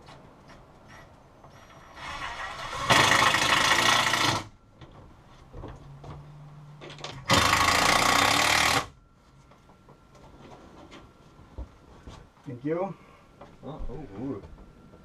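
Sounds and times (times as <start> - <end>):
low steady hum: 0.0 - 15.0
power tool running: 2.0 - 4.5, 7.3 - 9.0.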